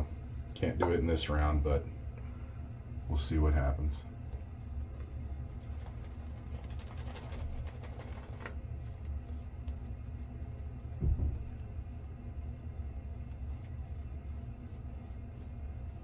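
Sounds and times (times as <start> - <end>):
steady low hum: 0.0 - 16.0
low thump: 11.0 - 11.6.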